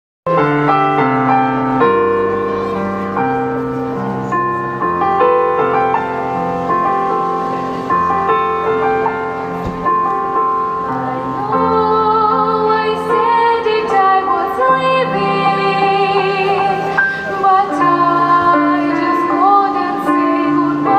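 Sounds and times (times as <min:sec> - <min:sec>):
piano chords and melody: 0:00.3 - 0:20.9
girl singing with vibrato: 0:10.9 - 0:20.9.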